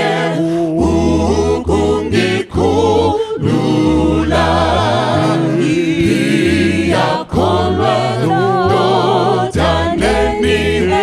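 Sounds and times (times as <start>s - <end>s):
choir singing a hymn a cappella: 0.0s - 11.0s.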